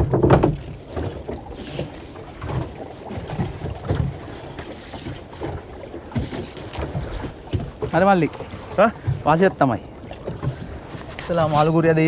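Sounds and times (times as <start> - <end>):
water lapping against a boat hull: 0.0 - 12.0.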